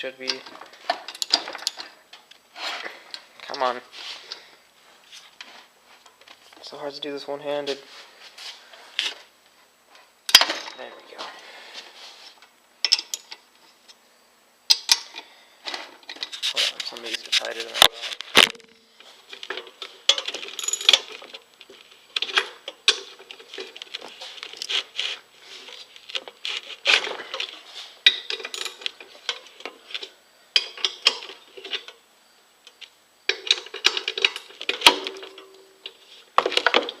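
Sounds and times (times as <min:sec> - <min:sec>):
loose bolts rattling: 0:00.2 - 0:02.0
socket wrench clinking on metal: 0:12.8 - 0:13.4, 0:20.1 - 0:21.1, 0:28.0 - 0:29.5.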